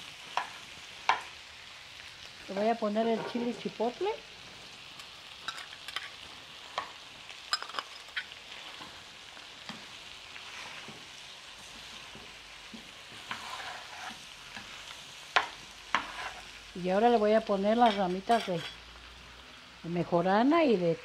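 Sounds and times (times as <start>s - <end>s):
food sizzling in a pot: 0.0s - 21.0s
spatula scraping a pot: 12.8s - 14.8s, 15.9s - 16.6s.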